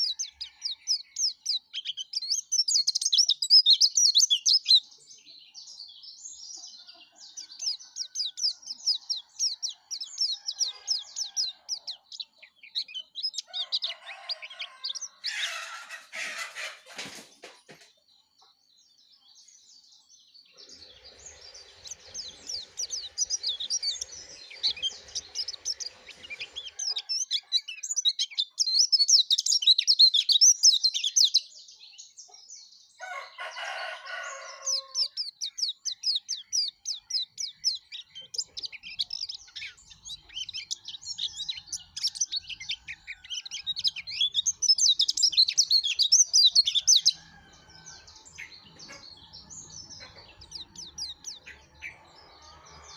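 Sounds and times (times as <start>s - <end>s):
bird twittering song: 0.0s - 52.9s
rooster call: 13.6s - 16.9s, 33.0s - 35.0s.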